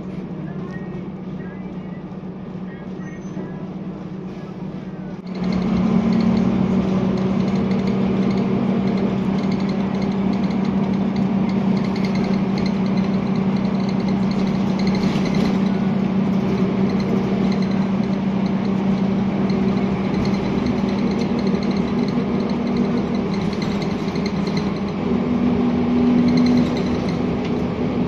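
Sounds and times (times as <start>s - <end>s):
bus diesel engine droning: 0.0s - 28.0s.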